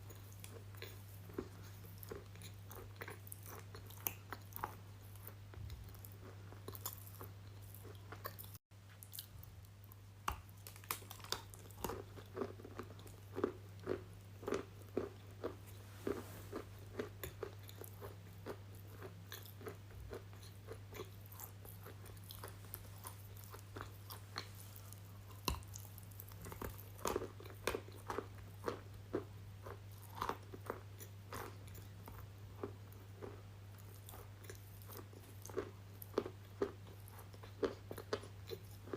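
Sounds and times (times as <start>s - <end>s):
crunchy chewing: 0.0s - 38.9s
low electrical hum: 0.0s - 38.9s.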